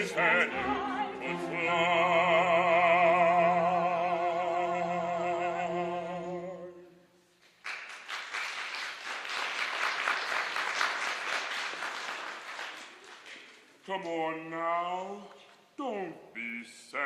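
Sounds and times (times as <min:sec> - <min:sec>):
sustained accompaniment: 0:00.0 - 0:06.8
audience applause: 0:07.6 - 0:13.7.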